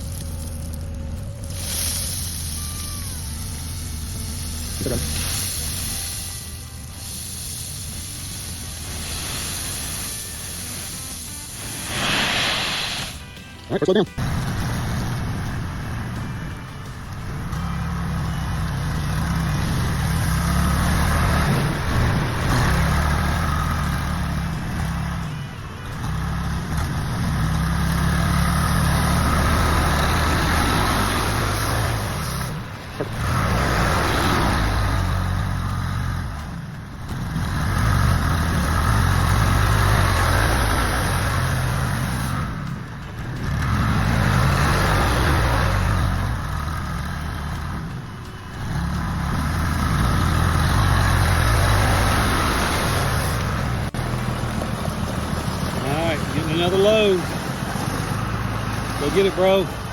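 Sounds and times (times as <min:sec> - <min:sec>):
heavy vehicle engine under load: 0:00.0 - 0:13.4, 0:14.2 - 0:59.9.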